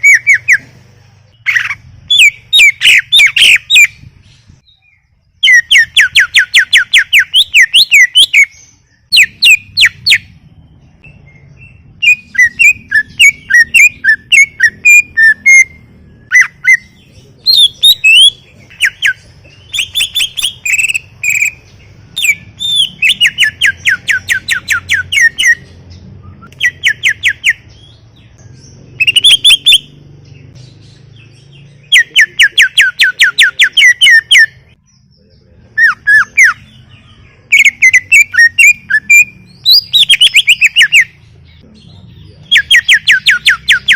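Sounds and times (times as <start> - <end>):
bird chirps and twitters: 0.0 - 43.9
bird whistling rapid runs: 1.4 - 4.0, 12.0 - 25.6, 26.5 - 27.7, 28.9 - 30.0, 37.5 - 41.1.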